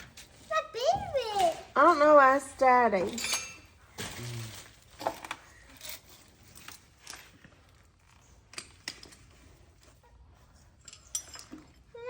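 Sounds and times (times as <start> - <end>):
hand tools clicking and clinking: 2.9 - 7.5, 8.1 - 9.7, 10.6 - 12.0.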